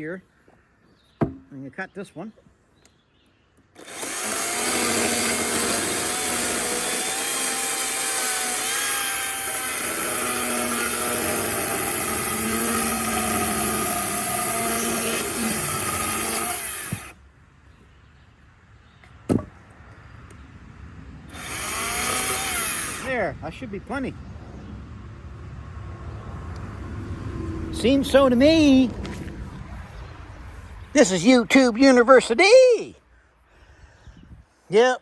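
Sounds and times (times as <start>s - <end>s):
single knock: 1.2s - 1.5s, 19.3s - 19.6s
electric chainsaw cutting wood: 3.8s - 17.2s, 21.3s - 23.2s.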